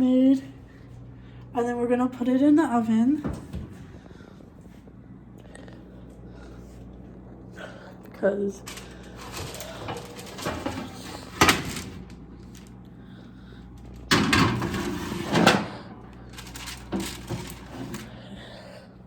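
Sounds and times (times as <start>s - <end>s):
baking tray clattering: 8.6s - 12.7s, 14.0s - 18.1s.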